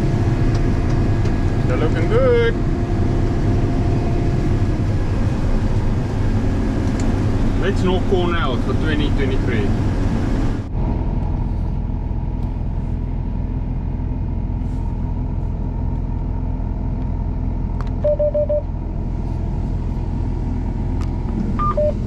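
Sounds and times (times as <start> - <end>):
combine harvester drone: 0.0 - 22.0.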